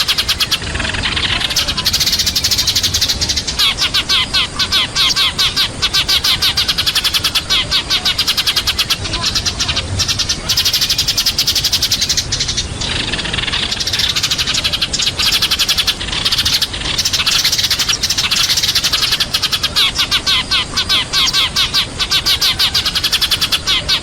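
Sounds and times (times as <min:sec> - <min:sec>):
sparrows chirping and chattering: 0:00.0 - 0:24.0.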